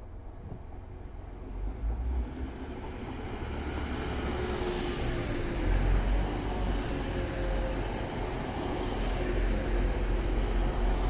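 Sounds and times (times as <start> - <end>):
diesel train passing: 0.0 - 11.0.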